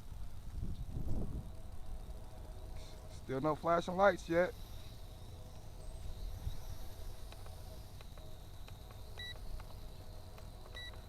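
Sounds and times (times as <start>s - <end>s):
wind rumble on microphone: 0.0s - 2.3s
toy drone motors whining: 0.0s - 11.0s.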